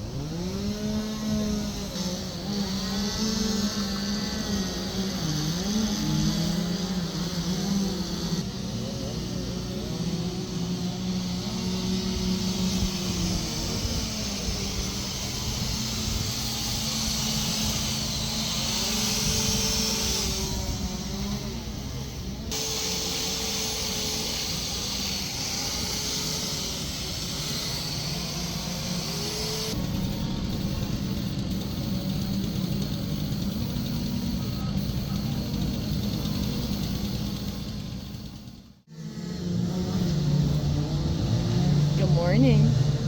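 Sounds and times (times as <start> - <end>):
chainsaw engines revving: 0.0 - 43.0.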